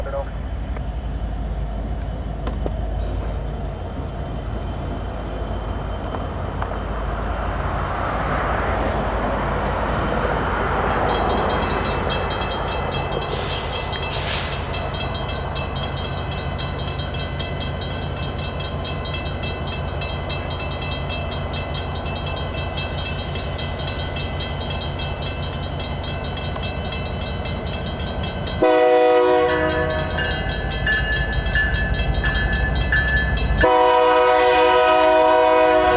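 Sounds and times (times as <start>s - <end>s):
diesel locomotives rumbling: 0.0s - 35.9s
crossing bell ringing: 10.8s - 35.2s
locomotive air horn blast: 28.6s - 30.0s, 33.6s - 35.9s.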